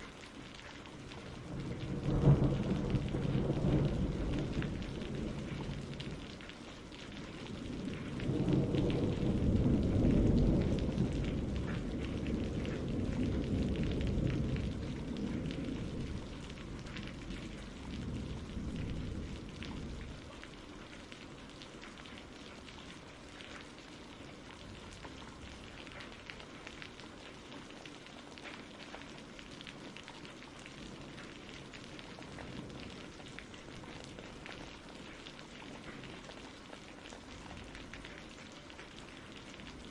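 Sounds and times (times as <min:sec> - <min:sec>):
steady rain: 0:00.0 - 0:39.9
rolling thunder rumble: 0:01.0 - 0:20.7, 0:30.7 - 0:36.4.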